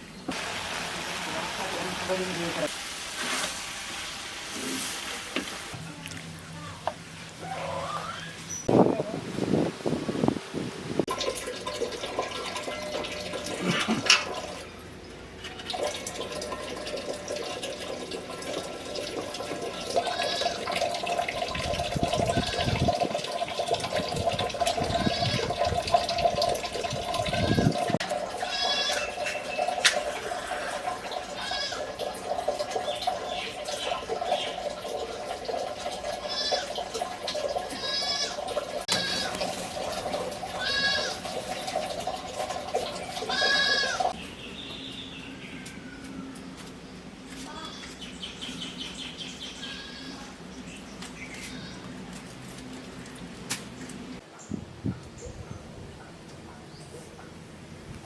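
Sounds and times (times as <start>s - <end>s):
water pouring and splashing: 0.3s - 5.8s, 8.6s - 44.2s
goats bleating: 19.8s - 20.9s, 27.3s - 29.2s, 30.3s - 32.0s, 36.1s - 36.8s, 37.7s - 39.4s, 40.5s - 41.3s, 43.2s - 44.1s.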